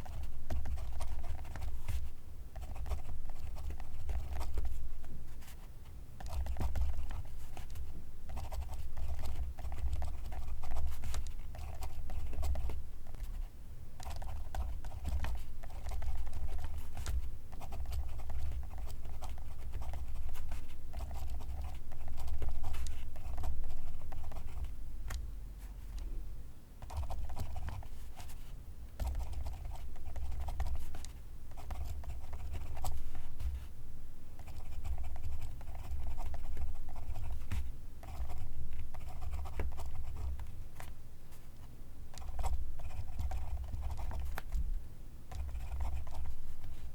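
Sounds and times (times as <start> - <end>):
pencil writing on paper: 29.0 - 33.6, 34.4 - 40.4, 42.2 - 44.4, 45.3 - 46.4.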